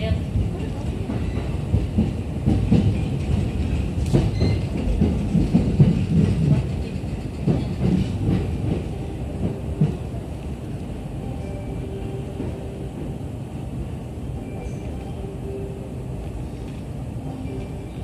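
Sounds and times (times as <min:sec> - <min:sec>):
train interior rumble: 0:00.0 - 0:18.0
wheels knocking on track: 0:00.3 - 0:10.1.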